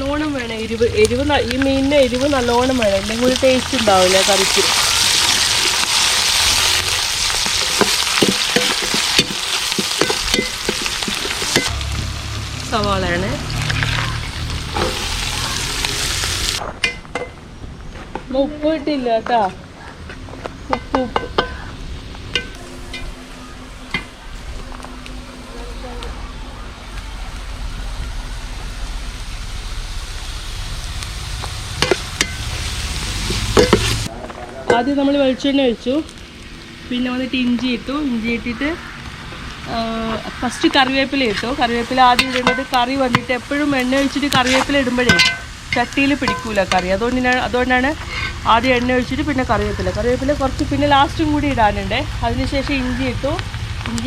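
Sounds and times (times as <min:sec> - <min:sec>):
food sizzling in hot oil: 0:00.0 - 0:17.0, 0:27.4 - 0:34.1, 0:34.7 - 0:54.0
spoon clicking and scraping pan: 0:07.6 - 0:11.7, 0:42.1 - 0:43.3, 0:44.4 - 0:46.9
spoon knocking against pan: 0:45.1 - 0:46.8.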